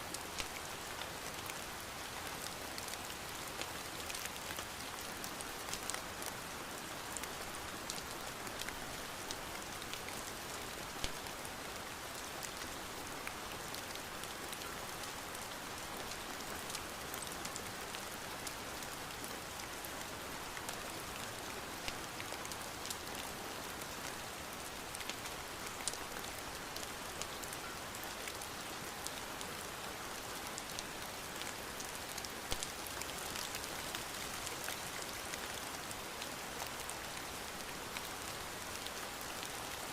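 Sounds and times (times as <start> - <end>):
rain tapping on a surface: 0.1 - 1.6, 10.8 - 11.4, 31.4 - 35.9.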